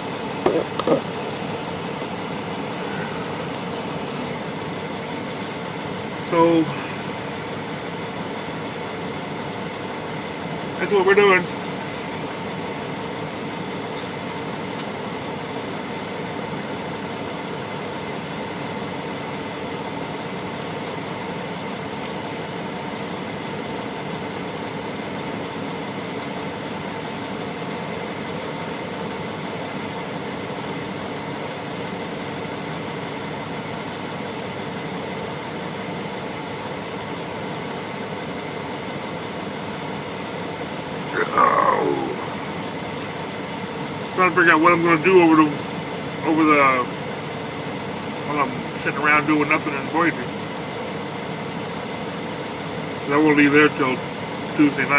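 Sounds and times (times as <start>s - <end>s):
air conditioner humming: 1.0s - 7.4s, 41.1s - 43.2s.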